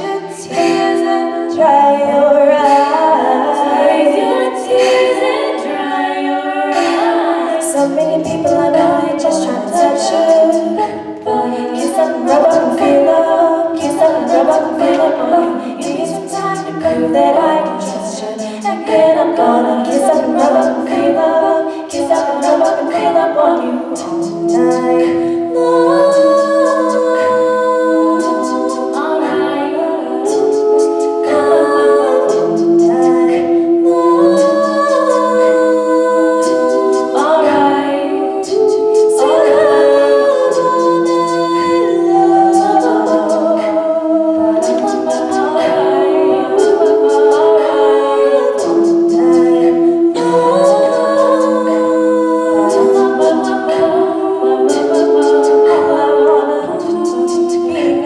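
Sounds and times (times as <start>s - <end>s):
vocal group singing chords: 0.0s - 58.0s
vocal percussion clicks: 13.8s - 19.1s, 21.7s - 29.5s, 30.2s - 37.7s, 38.4s - 45.8s, 46.5s - 54.0s.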